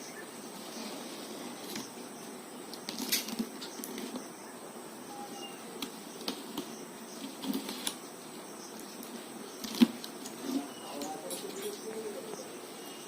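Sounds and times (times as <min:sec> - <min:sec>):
box and packing being handled: 0:05.7 - 0:08.0, 0:09.0 - 0:11.8.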